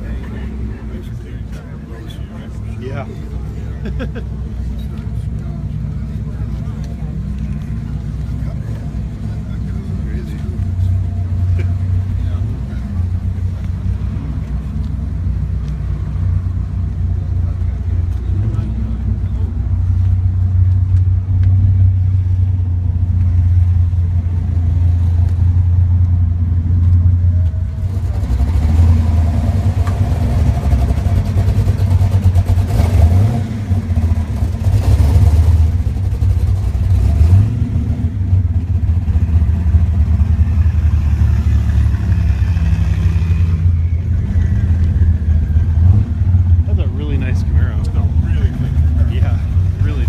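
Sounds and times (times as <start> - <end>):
car engine running: 0.0 - 50.0.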